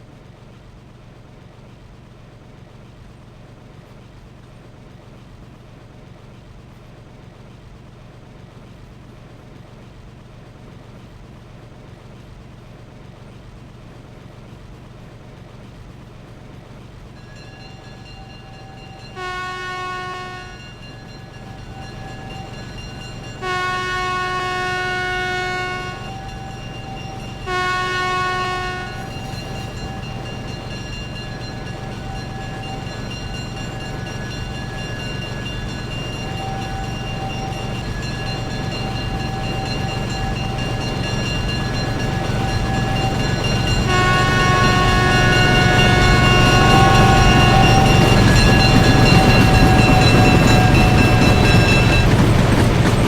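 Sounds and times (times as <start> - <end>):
train horn: 17.2 - 52.5.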